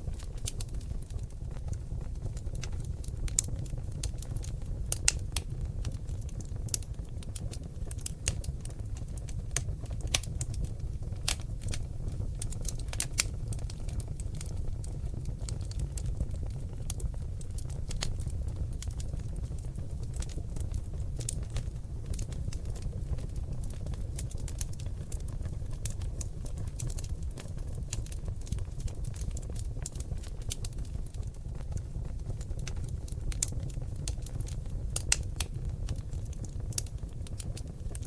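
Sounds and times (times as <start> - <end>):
logs crackling in a fireplace: 0.0 - 38.0.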